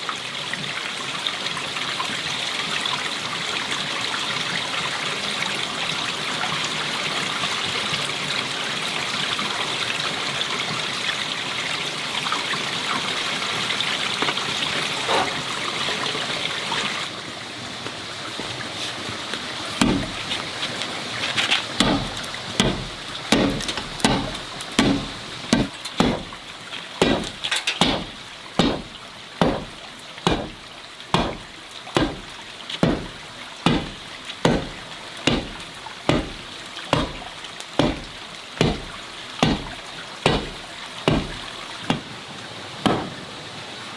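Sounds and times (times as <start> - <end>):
water trickling: 0.0 - 43.9
chopping strokes: 19.8 - 20.2, 21.8 - 26.4, 27.0 - 37.2, 37.8 - 42.1, 42.8 - 43.2.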